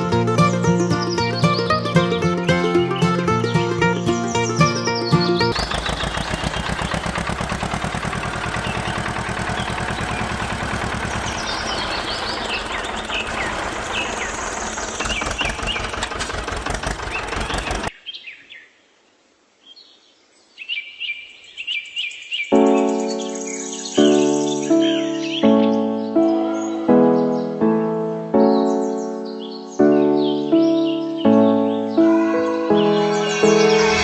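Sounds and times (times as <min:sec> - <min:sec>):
small engine running: 0:05.6 - 0:11.5.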